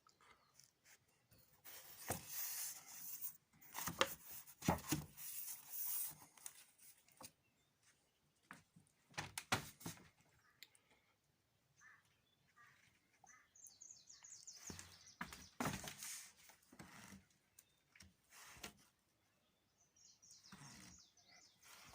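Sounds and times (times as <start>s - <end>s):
scraping and rubbing: 1.6s - 7.1s.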